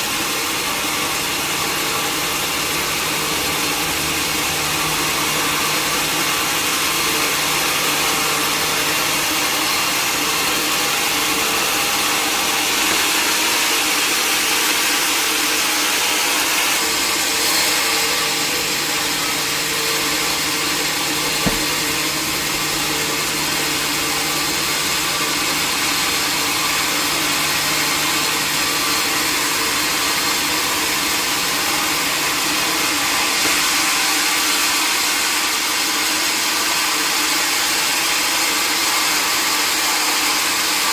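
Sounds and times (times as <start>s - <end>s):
sawmill saw running: 0.0s - 40.9s
short knock: 21.2s - 22.0s.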